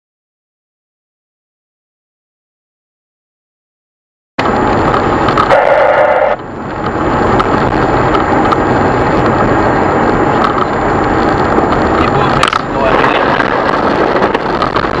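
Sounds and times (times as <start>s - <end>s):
car road noise: 4.4s - 15.0s
harsh rush: 9.3s - 15.0s.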